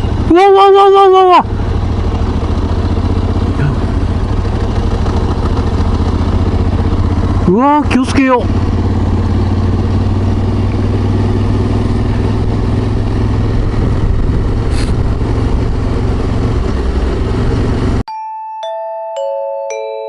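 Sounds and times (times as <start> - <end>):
motorcycle engine running: 0.0 - 18.1
road noise: 0.0 - 18.1
wind rushing: 11.7 - 18.0.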